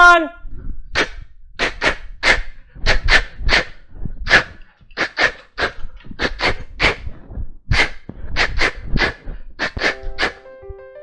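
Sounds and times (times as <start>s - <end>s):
dog yapping: 1.0s - 7.1s, 7.7s - 10.5s.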